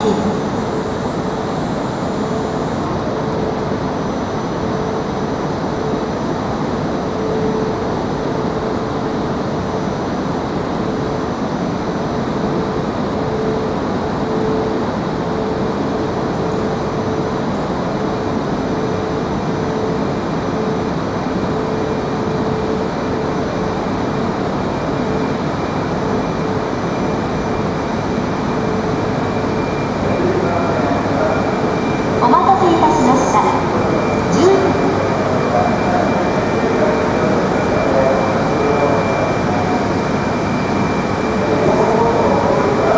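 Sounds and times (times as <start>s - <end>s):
train rumble and hiss: 0.0s - 42.9s
mid-pitched hum: 29.4s - 40.0s.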